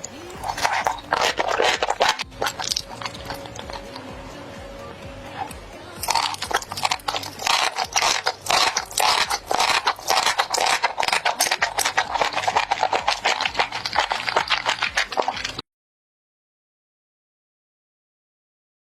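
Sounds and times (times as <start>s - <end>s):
chewing and mouth smacking: 0.0s - 4.1s, 6.0s - 15.6s.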